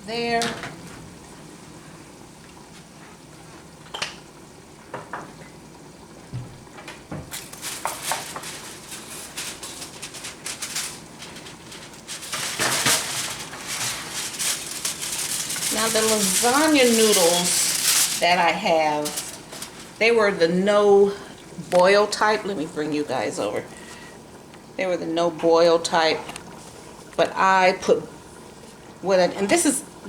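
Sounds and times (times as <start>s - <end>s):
food sizzling in a pan: 7.3s - 21.0s.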